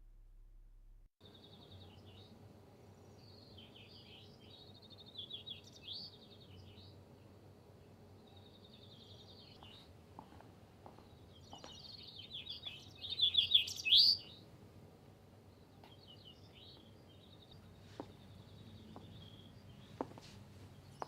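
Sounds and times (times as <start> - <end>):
faint low hum: 0.0 - 21.0
chaffinch singing trills: 1.2 - 7.3, 11.0 - 14.4, 15.5 - 20.0.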